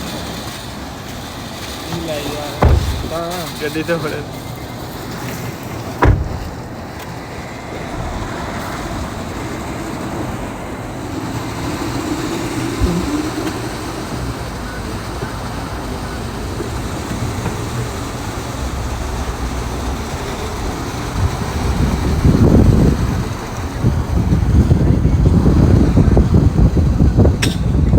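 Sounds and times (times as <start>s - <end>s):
rushing noise of vehicles: 0.0s - 27.9s
sharp knock: 2.6s - 3.2s, 6.0s - 6.7s.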